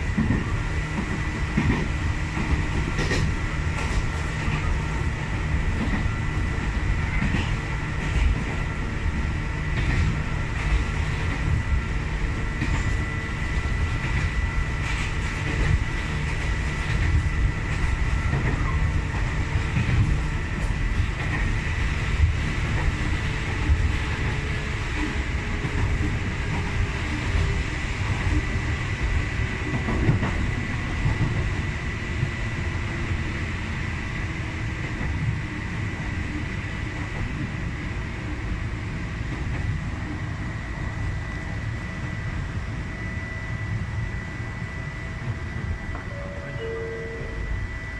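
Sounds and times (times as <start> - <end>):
train rumbling on track: 0.0 - 47.9
steady high whine: 41.1 - 47.9.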